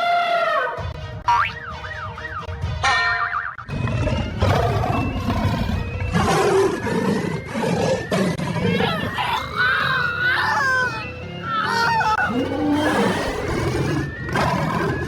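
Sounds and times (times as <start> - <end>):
background music: 0.0 - 15.0
animal-like roar: 3.7 - 15.0
wavering cry: 3.8 - 15.0.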